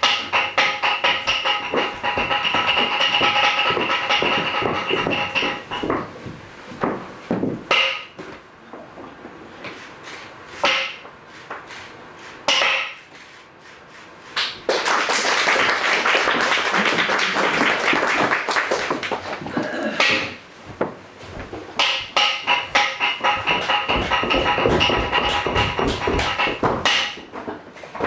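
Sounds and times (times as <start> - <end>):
audience applause: 14.7 - 19.8.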